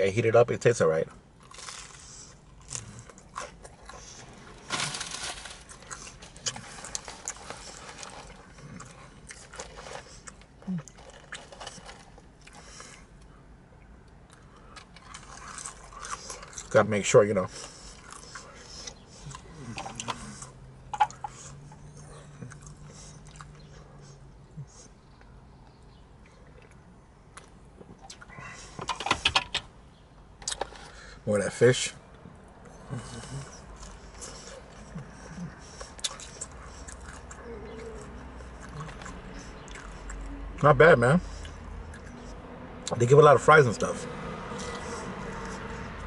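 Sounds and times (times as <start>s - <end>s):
man chewing food: 1.3s - 16.7s, 17.5s - 28.8s, 32.1s - 40.5s, 41.2s - 42.4s, 44.5s - 46.0s
crunching crisp crust: 1.4s - 13.4s, 14.2s - 20.6s.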